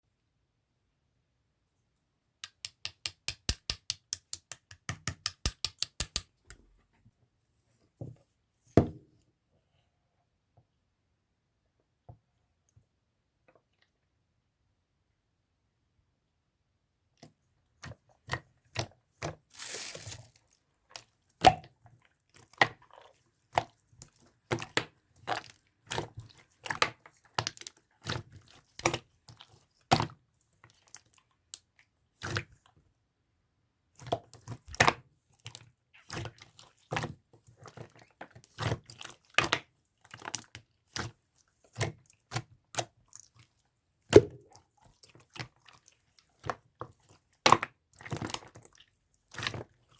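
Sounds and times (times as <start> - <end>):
crinkly rustle: 19.5 - 20.6.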